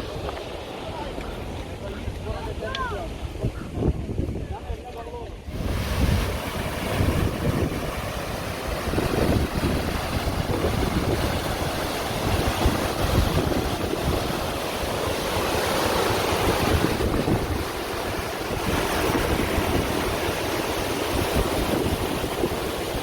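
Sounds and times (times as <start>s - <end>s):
wind buffeting microphone: 0.0s - 23.0s
waterfall rushing: 5.5s - 23.0s.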